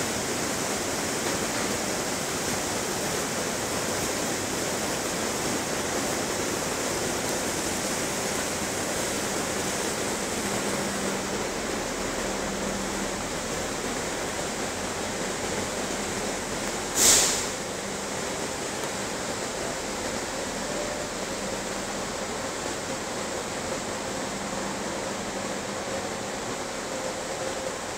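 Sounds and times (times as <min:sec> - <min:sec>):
sharp hiss of air: 0:16.9 - 0:17.8.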